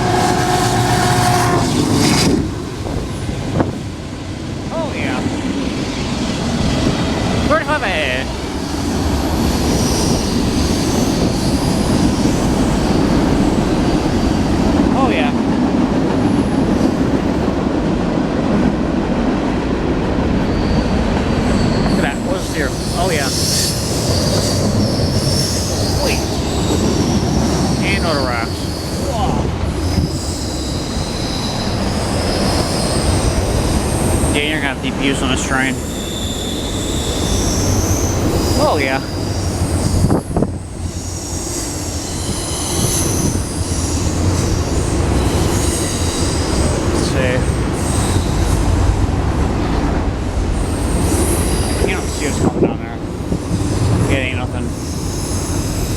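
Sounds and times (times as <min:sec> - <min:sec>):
freight train wheels rumbling: 0:00.0 - 0:55.9
faint high squeal: 0:08.6 - 0:14.3, 0:20.5 - 0:46.8.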